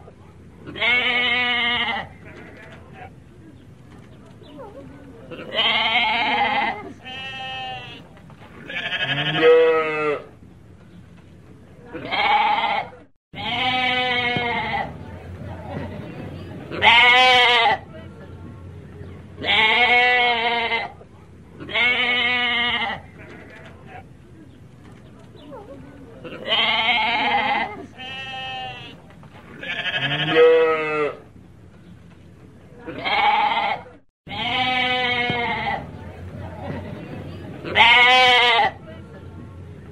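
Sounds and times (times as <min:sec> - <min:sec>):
sheep bleating: 0:05.4 - 0:08.0, 0:08.7 - 0:10.3, 0:12.0 - 0:14.9, 0:26.3 - 0:29.0, 0:29.6 - 0:31.2, 0:32.9 - 0:35.9, 0:37.7 - 0:38.8.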